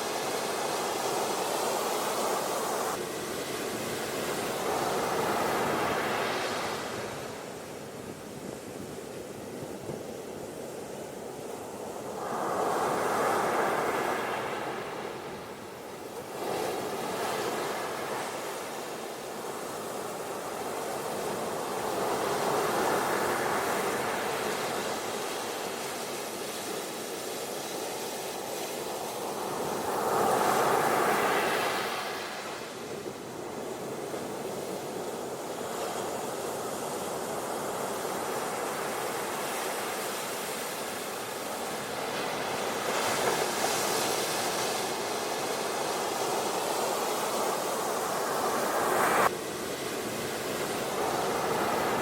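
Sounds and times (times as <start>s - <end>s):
waves breaking on beach: 0.0s - 52.0s.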